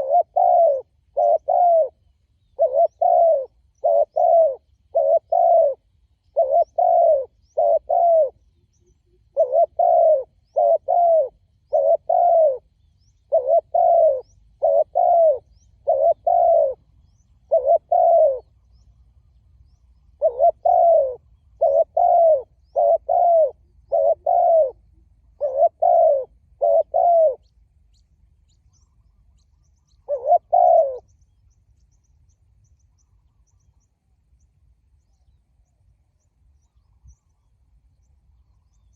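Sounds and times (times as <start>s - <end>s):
dove cooing: 0.0s - 18.7s, 20.2s - 27.5s, 29.9s - 31.1s.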